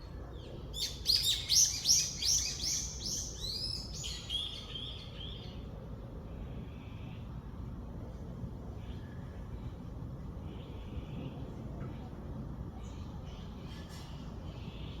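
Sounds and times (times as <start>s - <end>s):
songbird singing: 0.0s - 5.7s.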